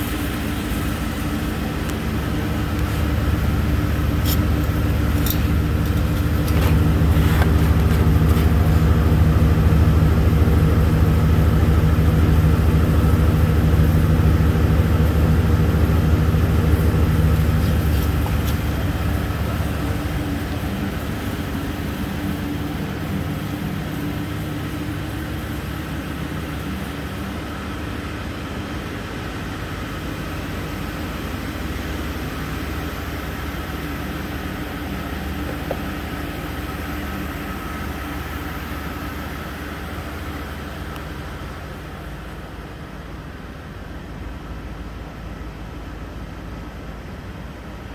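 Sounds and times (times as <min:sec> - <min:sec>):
engine running: 0:00.0 - 0:47.9.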